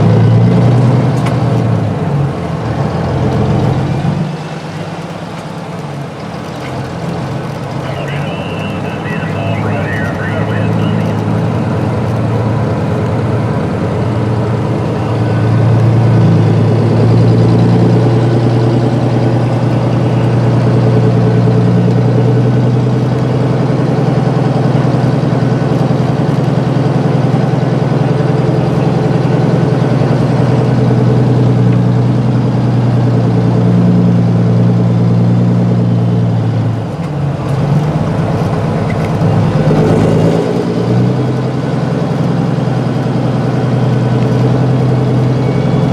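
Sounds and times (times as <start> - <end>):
truck diesel engine running: 0.0 - 45.9.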